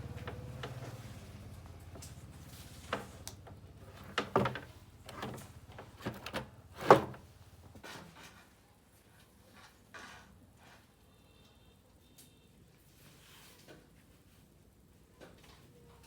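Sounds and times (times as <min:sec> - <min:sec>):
hard objects knocking and clunking: 0:03.9 - 0:07.2.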